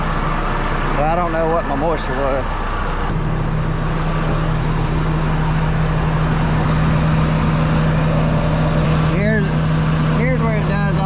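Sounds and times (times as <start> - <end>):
harvester engine idling: 3.2 - 11.0.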